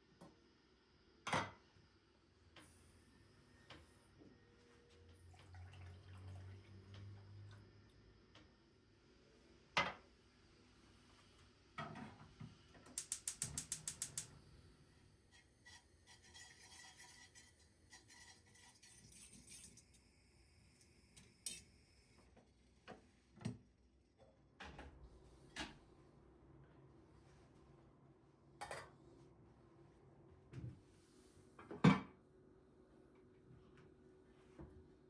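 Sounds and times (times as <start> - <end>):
rapid clicks: 13.0 - 14.3.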